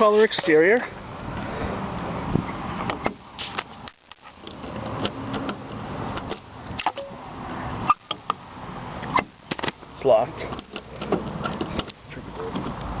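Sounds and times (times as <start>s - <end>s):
sharp clicks and knocks: 2.8s - 7.1s, 9.0s - 13.0s.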